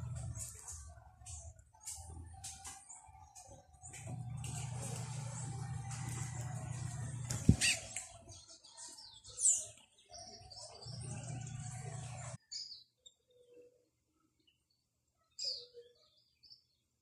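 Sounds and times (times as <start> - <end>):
steady low hum: 0.0 - 2.6, 3.6 - 8.1, 10.9 - 12.4
small birds chirping: 0.0 - 17.0.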